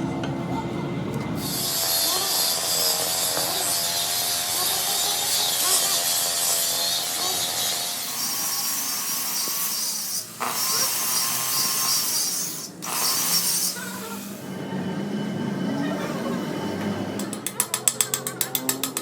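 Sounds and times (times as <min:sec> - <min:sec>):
power tool whirring on metal: 0:01.4 - 0:14.6.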